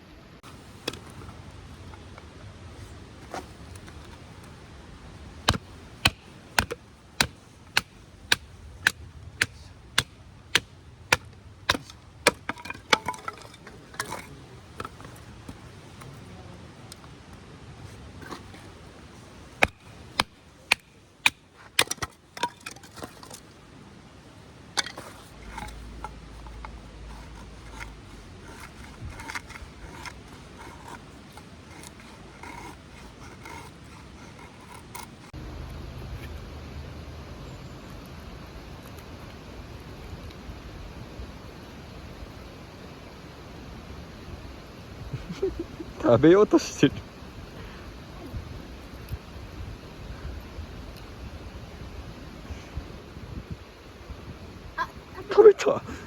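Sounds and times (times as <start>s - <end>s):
firewood being chopped: 3.3s - 16.1s, 18.2s - 23.6s, 24.7s - 35.3s.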